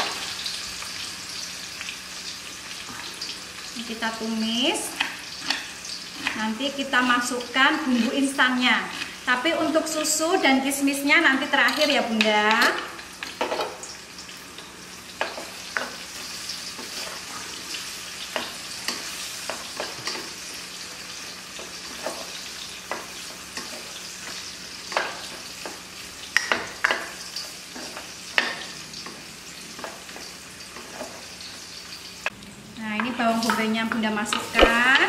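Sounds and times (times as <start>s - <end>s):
food sizzling in hot oil: 0.0s - 35.0s
spatula scraping a pan: 4.8s - 10.0s, 15.2s - 20.6s, 21.2s - 31.6s.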